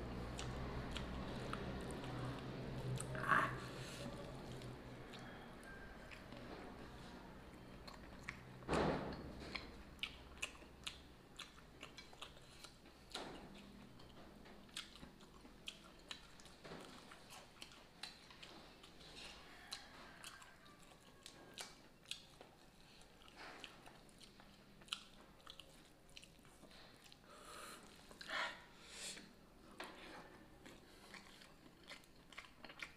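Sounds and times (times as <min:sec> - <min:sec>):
man chewing and lip-smacking: 0:00.0 - 0:06.6, 0:07.5 - 0:32.9.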